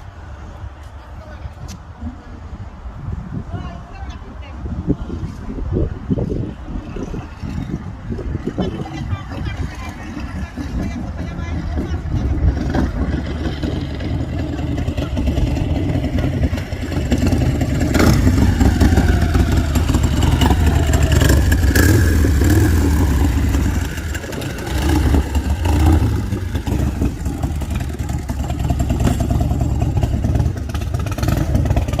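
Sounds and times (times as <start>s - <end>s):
motorcycle engine revving: 7.0s - 32.0s.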